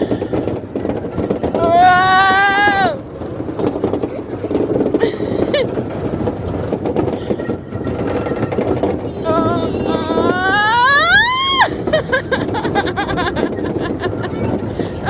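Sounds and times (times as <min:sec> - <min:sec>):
amusement ride rumbling and rattling: 0:00.0 - 0:15.0
child's high cry: 0:01.6 - 0:03.0, 0:09.2 - 0:11.8.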